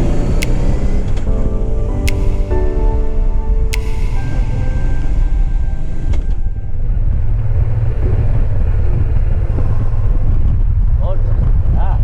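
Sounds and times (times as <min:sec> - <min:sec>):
music track: 0:00.0 - 0:09.8
click: 0:02.0 - 0:03.0, 0:03.7 - 0:06.4.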